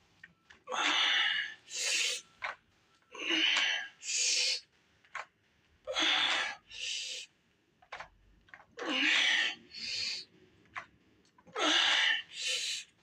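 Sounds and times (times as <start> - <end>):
man breathing hard: 5.9 - 7.3, 8.9 - 10.3, 11.6 - 12.9.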